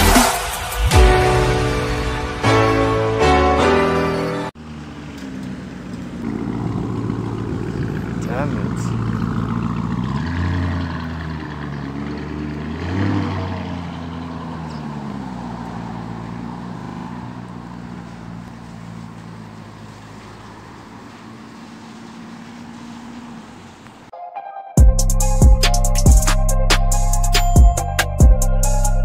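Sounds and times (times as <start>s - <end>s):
car exhaust revving: 0.0s - 2.6s, 4.6s - 23.6s.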